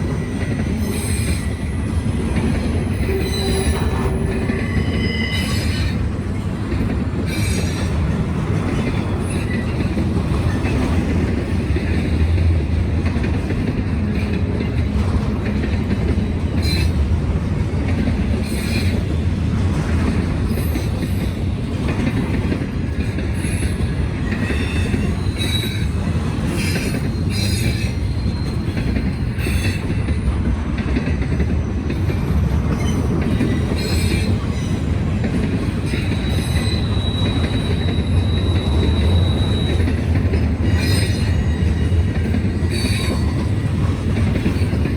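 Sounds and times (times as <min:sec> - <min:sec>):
freight train rumbling past: 0:00.0 - 0:44.9
wheels clacking over rails: 0:02.0 - 0:44.9
high wheel squeal: 0:02.8 - 0:06.0, 0:23.4 - 0:29.9, 0:35.8 - 0:43.8.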